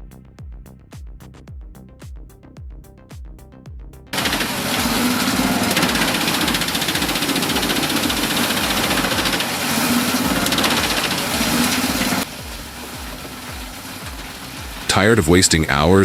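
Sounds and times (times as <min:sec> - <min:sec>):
electronic music beat: 0:00.0 - 0:16.0
heavy machinery running: 0:04.2 - 0:16.0.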